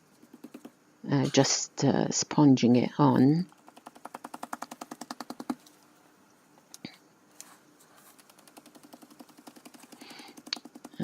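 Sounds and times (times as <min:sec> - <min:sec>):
sponge dabbing on card: 0:03.5 - 0:05.6, 0:07.9 - 0:11.0.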